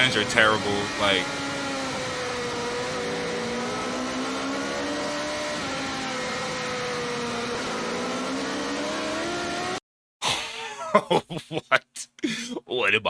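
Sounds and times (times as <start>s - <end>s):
motorcycle engine at high revs: 0.0s - 9.8s.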